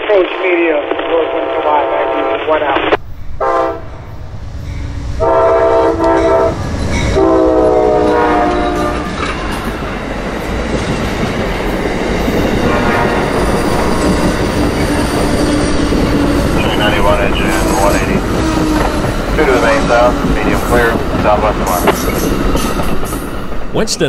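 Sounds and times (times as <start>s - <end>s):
train cars rumbling and clattering: 3.0s - 24.0s
train horn blasts: 3.4s - 4.0s, 5.2s - 9.3s, 12.6s - 14.2s.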